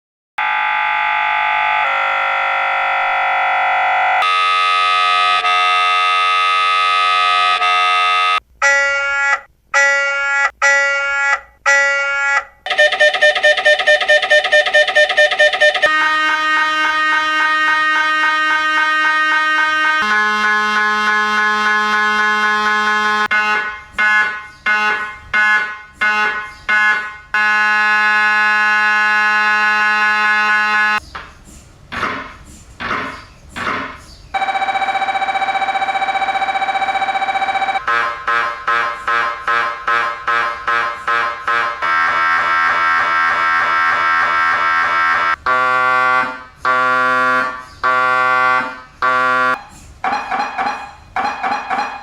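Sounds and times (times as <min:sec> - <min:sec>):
fast pulsing alarm tone: 0:00.4 - 0:31.0, 0:34.4 - 0:52.0
steady alarm tones: 0:00.4 - 0:31.0, 0:34.3 - 0:52.0
alarm beeps: 0:07.4 - 0:16.0, 0:34.4 - 0:37.9, 0:45.2 - 0:52.0.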